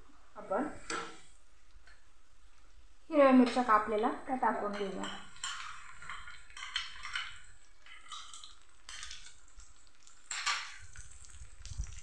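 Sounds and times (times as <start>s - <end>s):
onion sizzling in hot oil: 3.1s - 12.0s.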